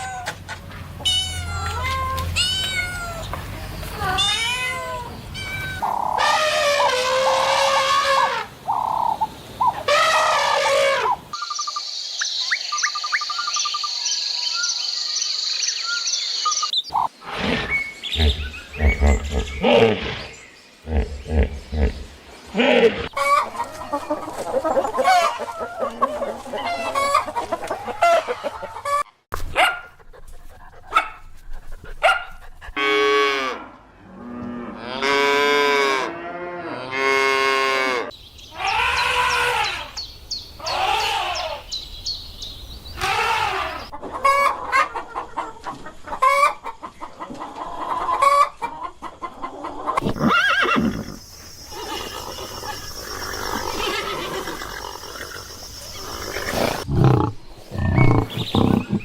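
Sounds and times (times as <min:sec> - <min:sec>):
roosters crowing: 0:05.4 - 0:11.3, 0:36.9 - 0:41.8, 0:42.9 - 0:44.4, 0:50.0 - 0:56.9
chickens clucking: 0:23.0 - 0:29.1, 0:43.0 - 0:50.1.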